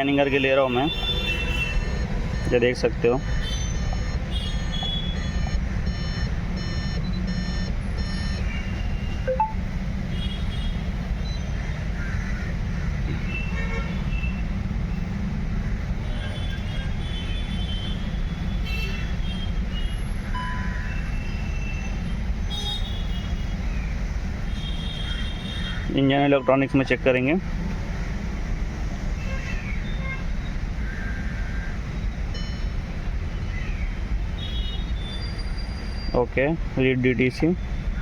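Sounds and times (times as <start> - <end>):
faint high electronic beeps: 2.3 - 8.6, 9.3 - 9.6.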